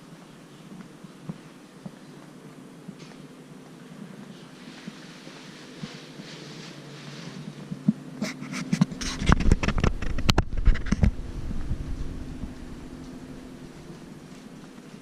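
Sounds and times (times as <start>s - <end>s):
steady mechanical hum: 0.0s - 15.0s
heavy low rumble: 8.8s - 15.0s.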